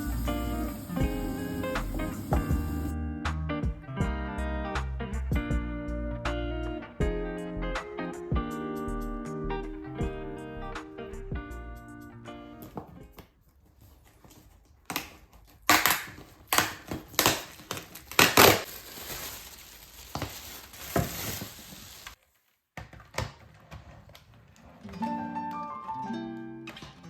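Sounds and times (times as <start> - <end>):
instrumental music: 0.0 - 12.7
crunching and crinkling: 13.8 - 22.4.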